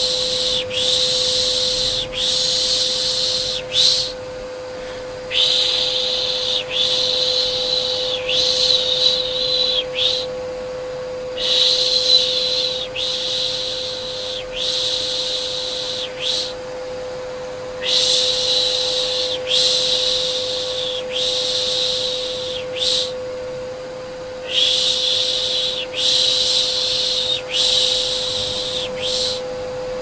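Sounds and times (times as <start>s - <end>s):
person shushing: 0.0s - 4.2s, 4.8s - 10.3s, 11.3s - 16.6s, 24.4s - 29.5s
vacuum cleaner motor hum: 0.0s - 30.0s.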